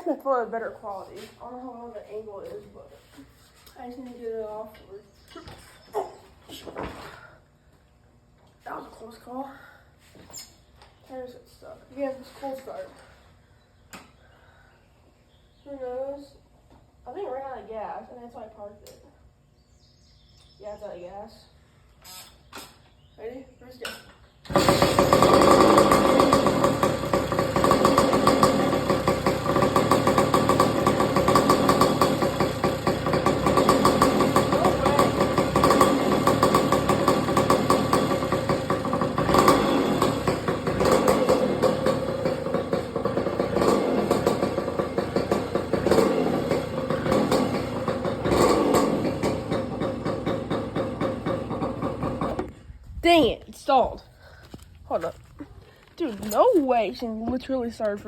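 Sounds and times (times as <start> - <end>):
motorcycle engine starting and revving: 24.4 - 52.6.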